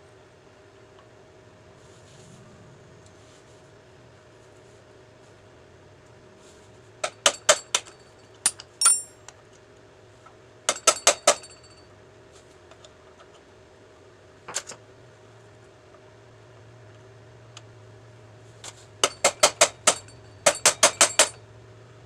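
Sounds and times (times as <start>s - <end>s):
hammer tapping metal: 8.5s - 9.2s, 19.0s - 21.4s.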